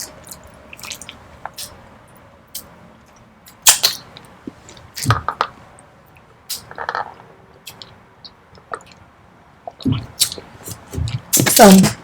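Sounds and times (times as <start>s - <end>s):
close-miked chewing: 0.0s - 3.3s.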